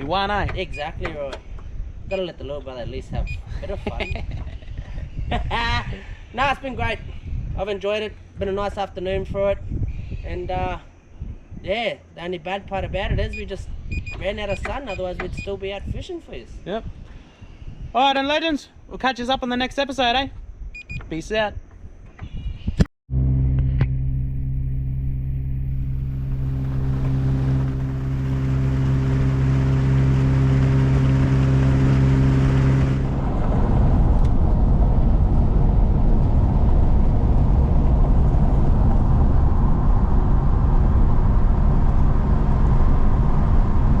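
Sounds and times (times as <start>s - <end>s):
outboard motor running: 24.8s - 33.4s.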